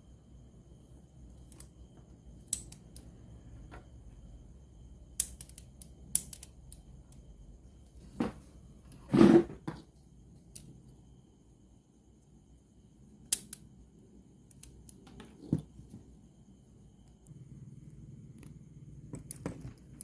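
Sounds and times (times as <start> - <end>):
small tools clicking and tapping: 5.2 - 7.2.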